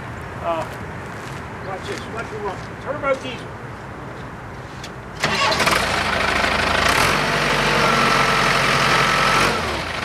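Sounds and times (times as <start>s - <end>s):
diesel engine revving: 5.2s - 10.0s.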